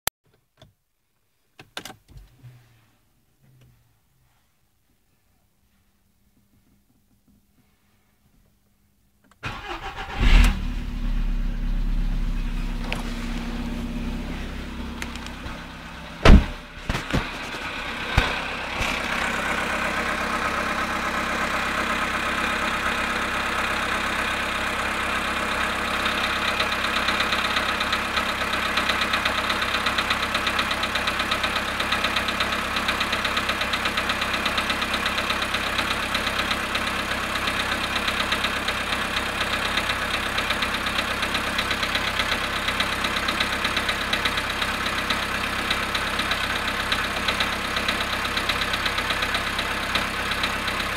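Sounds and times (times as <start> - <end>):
car engine idling with knock: 10.6 - 50.9
loud thumps: 15.4 - 19.0.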